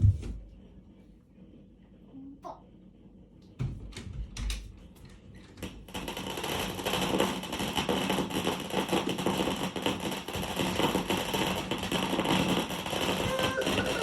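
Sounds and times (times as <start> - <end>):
firework crackling: 5.6 - 14.0.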